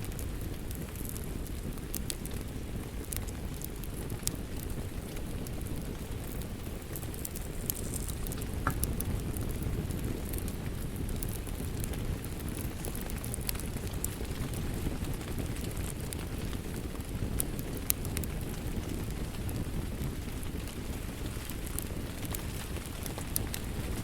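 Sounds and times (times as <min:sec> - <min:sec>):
rain: 0:00.0 - 0:24.0
wood fire crackling and popping: 0:00.0 - 0:24.0.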